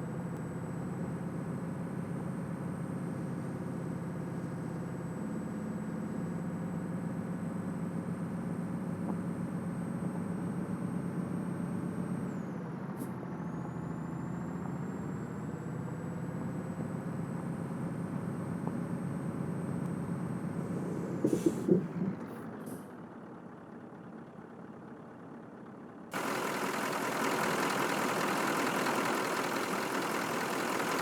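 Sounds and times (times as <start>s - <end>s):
truck diesel engine running: 11.0s - 31.0s.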